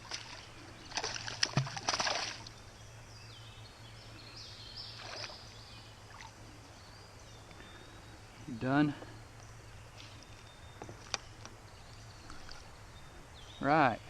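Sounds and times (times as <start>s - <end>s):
water splashing and sloshing: 0.0s - 2.6s, 4.9s - 6.6s, 12.2s - 12.8s
bird singing faintly: 0.0s - 14.0s.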